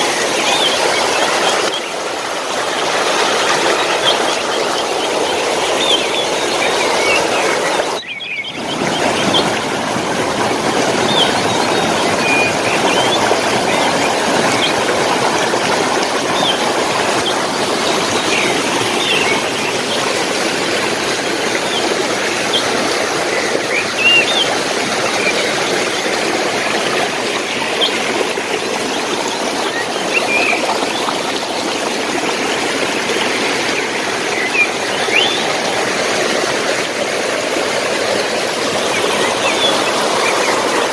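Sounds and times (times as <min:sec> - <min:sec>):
stream water running: 0:00.0 - 0:40.9
small birds chirping: 0:03.6 - 0:09.7.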